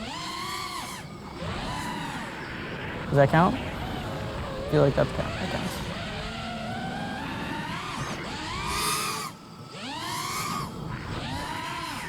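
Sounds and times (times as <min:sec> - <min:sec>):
drone motors whining: 0:00.0 - 0:12.0.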